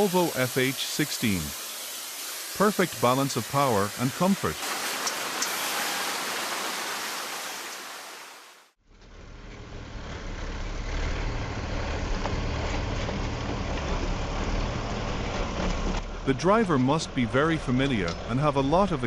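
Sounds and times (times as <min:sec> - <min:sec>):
steady hiss: 0:00.0 - 0:08.8
truck engine droning: 0:08.9 - 0:19.0.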